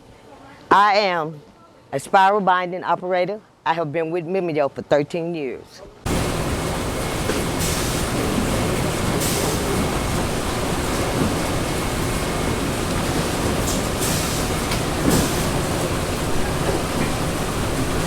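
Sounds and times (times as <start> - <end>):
machinery rumble: 6.1 - 18.0.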